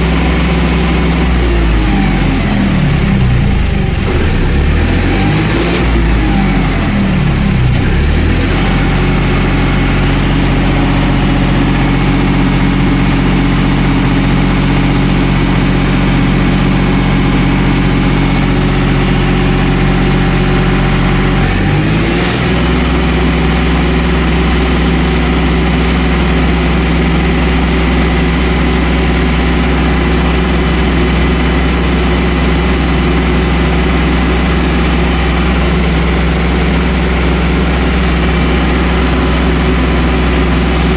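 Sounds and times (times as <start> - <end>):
tractor diesel engine idling: 0.0 - 40.9.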